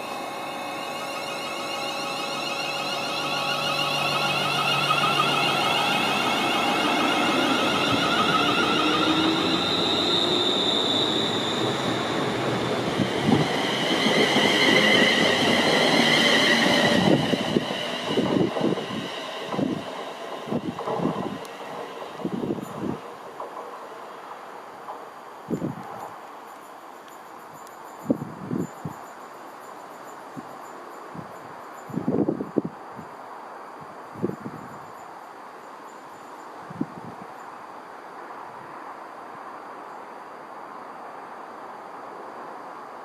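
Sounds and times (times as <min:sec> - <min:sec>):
high whining tones: 0:00.0 - 0:23.7
train rushing past: 0:00.0 - 0:26.2
train rumble and knocking: 0:00.0 - 0:26.3.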